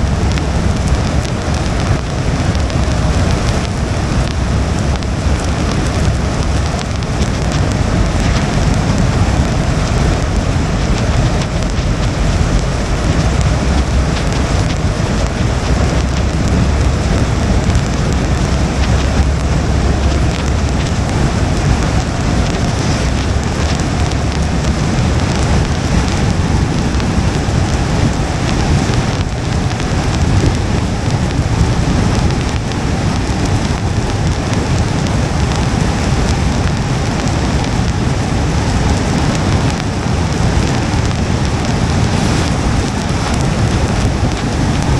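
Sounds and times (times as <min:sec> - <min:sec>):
rain pattering on car windshield: 0:00.0 - 0:44.9
tyres rumbling on wet pavement: 0:00.0 - 0:44.9.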